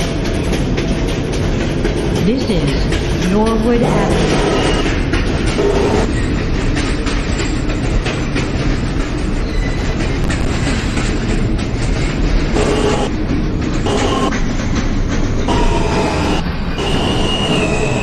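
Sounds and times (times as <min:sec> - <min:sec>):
subway train rumble and clatter: 0:00.0 - 0:18.0
brief tone: 0:04.2 - 0:05.0, 0:12.6 - 0:13.1, 0:13.9 - 0:14.3, 0:15.5 - 0:18.0.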